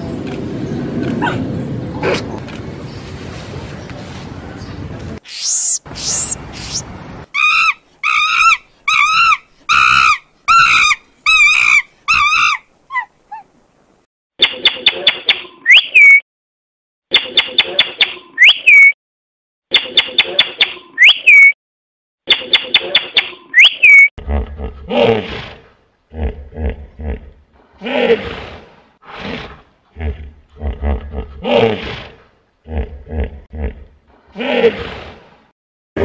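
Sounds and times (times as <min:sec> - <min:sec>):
macaw chattering and squawking: 0:05.2 - 0:13.1
macaque wavering calls: 0:05.3 - 0:06.8.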